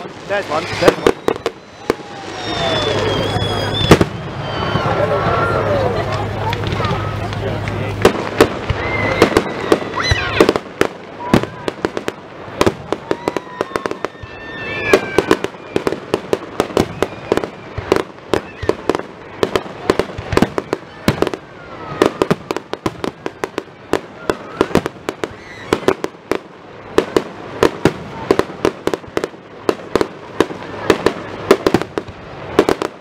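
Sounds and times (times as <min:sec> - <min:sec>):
fireworks shells bursting: 0:00.0 - 0:04.2
whistling fireworks: 0:00.0 - 0:33.0.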